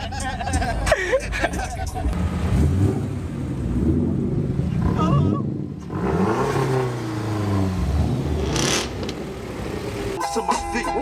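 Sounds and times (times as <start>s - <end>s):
car engine revving: 1.9s - 10.2s.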